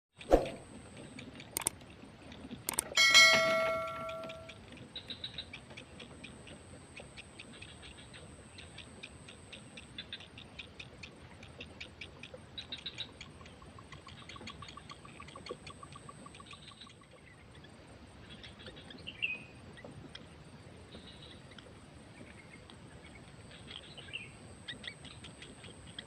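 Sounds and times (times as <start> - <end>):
short chirp: 2.7 - 4.5.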